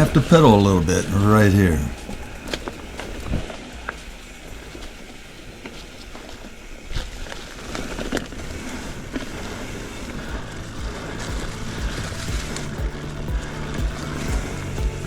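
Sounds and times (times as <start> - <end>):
bike tyre and wind noise: 2.0 - 15.0
bike knocking and rattling: 10.0 - 15.0.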